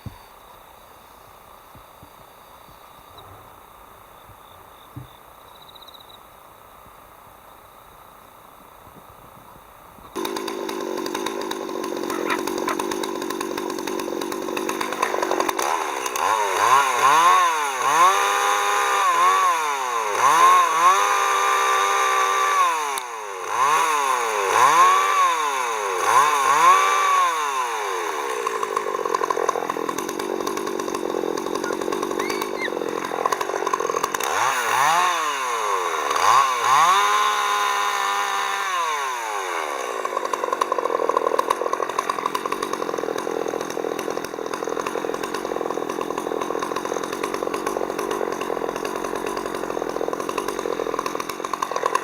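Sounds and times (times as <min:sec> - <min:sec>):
chainsaw engine revving: 0:10.1 - 0:52.0.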